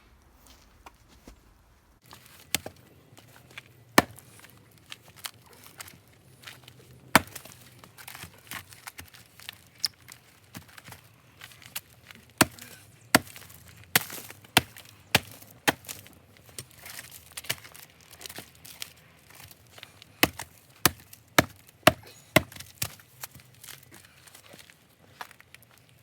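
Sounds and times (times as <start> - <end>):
wood scraping: 2.0 - 25.9
hatchet chopping wood: 2.1 - 2.8, 3.4 - 4.6, 5.2 - 9.5, 11.7 - 17.7, 20.2 - 23.4.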